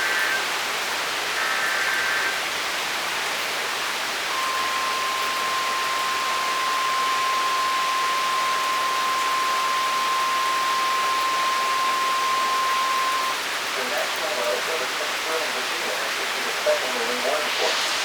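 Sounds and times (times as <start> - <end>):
torrential rain pouring: 0.0 - 18.0
brief faint high tones: 4.3 - 13.4
steady high warning beep: 4.3 - 13.4.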